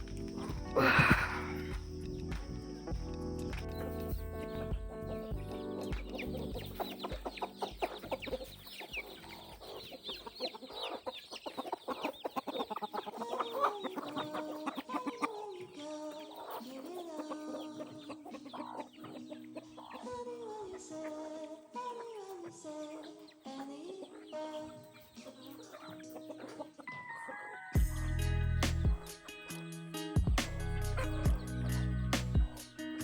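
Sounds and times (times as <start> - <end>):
chickens clucking: 0.0 - 33.0
drawn-out falling hen calls: 4.6 - 28.0.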